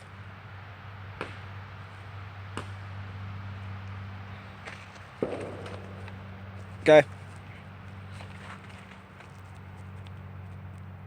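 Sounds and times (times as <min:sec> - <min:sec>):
steady low hum: 0:00.0 - 0:11.0
crunching stomp: 0:04.6 - 0:09.1.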